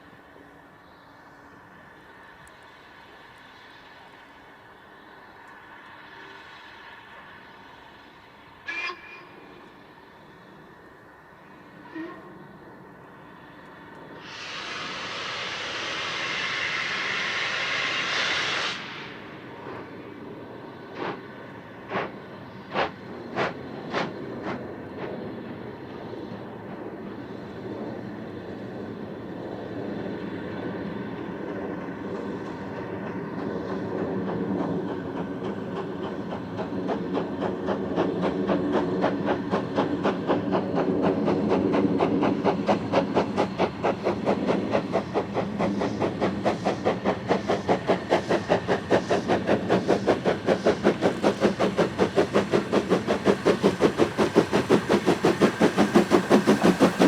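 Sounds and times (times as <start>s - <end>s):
train rhythmic beat: 34.0s - 57.0s.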